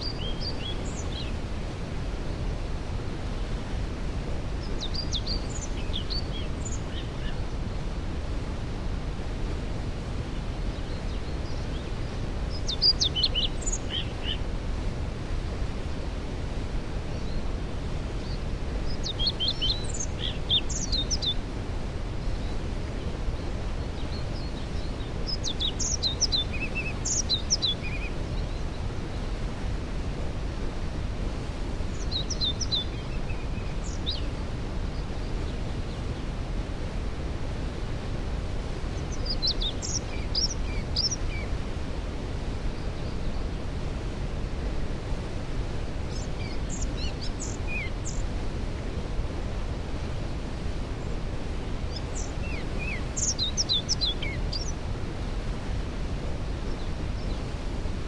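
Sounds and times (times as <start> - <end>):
songbird singing: 0.0 - 2.6, 4.5 - 7.9, 10.4 - 14.5, 17.0 - 29.6, 31.5 - 36.3, 38.7 - 44.2, 45.2 - 48.6, 50.0 - 54.9, 56.4 - 57.7
waterfall rushing: 36.2 - 58.0.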